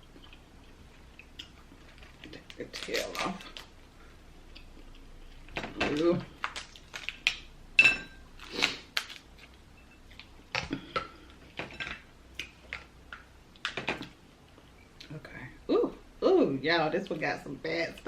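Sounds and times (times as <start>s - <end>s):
lobster shell cracking: 5.5s - 7.5s, 8.4s - 9.6s.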